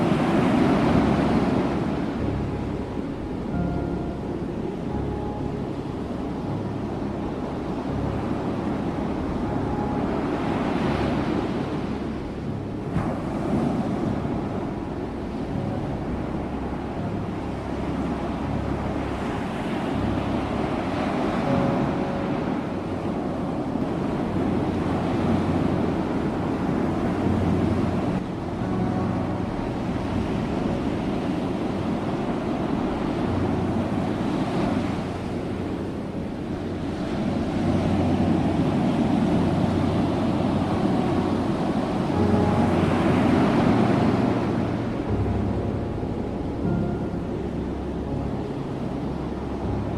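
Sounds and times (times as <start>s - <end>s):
waves breaking on shore: 0.0s - 49.9s.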